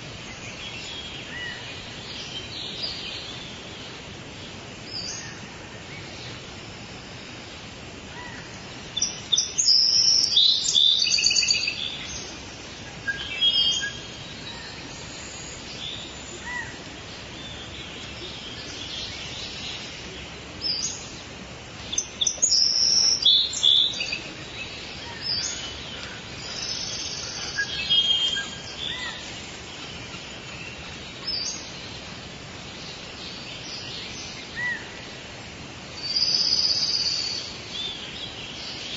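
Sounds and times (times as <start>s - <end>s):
forest ambience hiss: 0.0s - 38.9s
birds chirping and singing: 8.2s - 35.3s.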